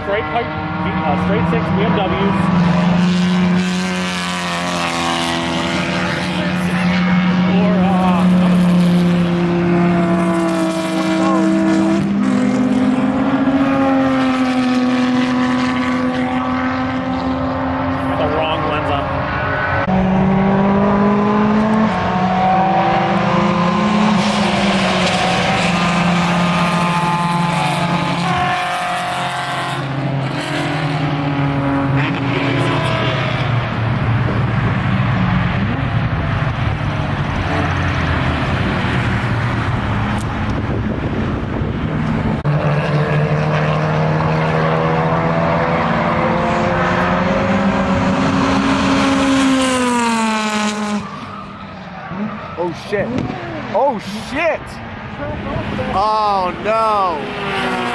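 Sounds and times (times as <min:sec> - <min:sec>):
race car engines passing: 0:00.0 - 0:57.9.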